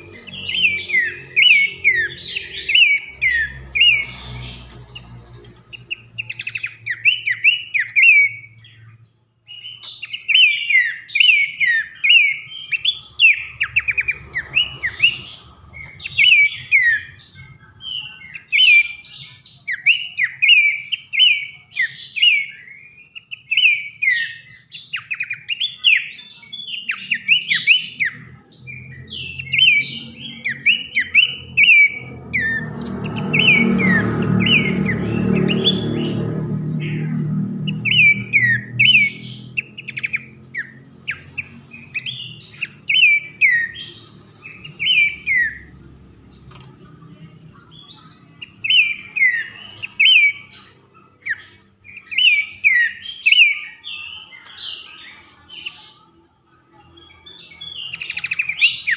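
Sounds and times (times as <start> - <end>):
bird singing whistled chirps: 0.0 - 46.4, 47.0 - 58.9.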